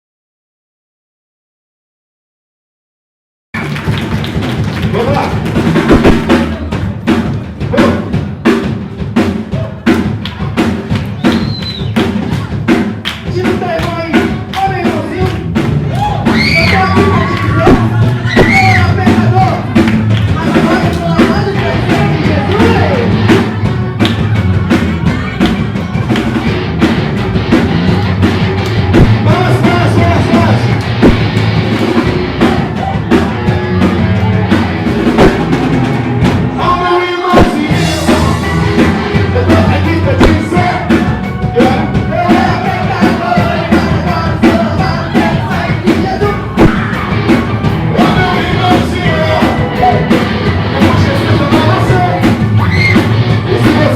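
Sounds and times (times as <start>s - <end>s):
rock band playing: 3.6s - 53.9s
person singing: 36.5s - 53.9s.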